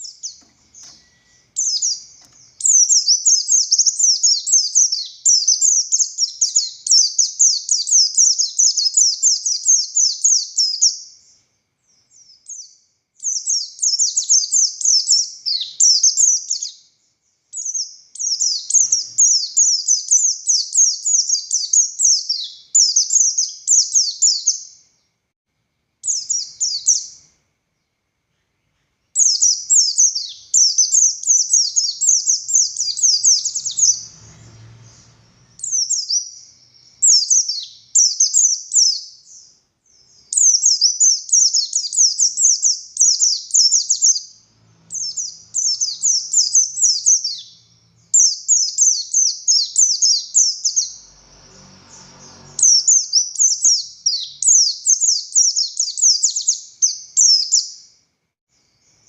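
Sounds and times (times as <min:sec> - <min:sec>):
bird singing high sharp notes: 0:00.0 - 0:11.1, 0:26.0 - 0:27.3, 0:29.2 - 0:57.9.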